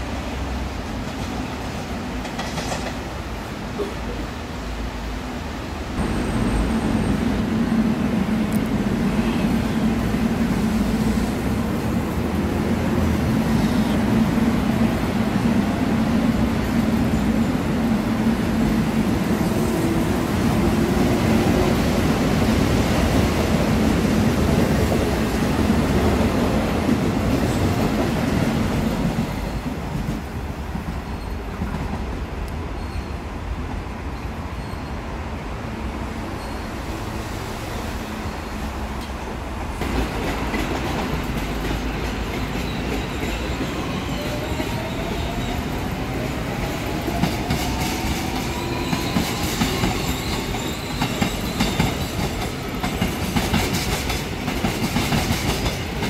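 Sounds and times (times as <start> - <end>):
electric train rumble: 0.0 - 32.6.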